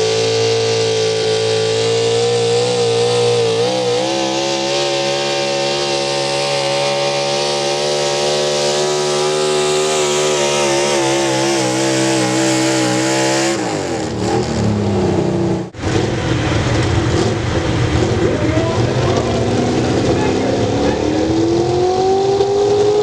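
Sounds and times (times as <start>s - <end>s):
truck engine running under load: 13.6s - 21.2s.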